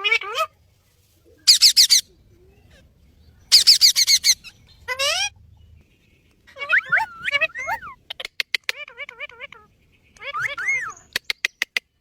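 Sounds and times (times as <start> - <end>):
shrill parrot calls: 1.5 - 2.0, 3.5 - 5.3, 6.6 - 8.2, 8.8 - 11.2.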